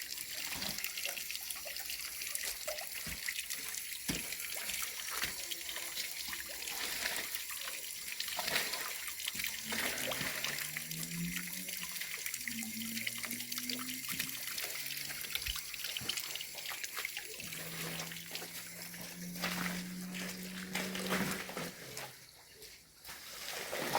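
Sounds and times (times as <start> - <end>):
water trickling: 0.0 - 23.9
low drawn-out tone: 9.7 - 15.6, 17.3 - 21.7.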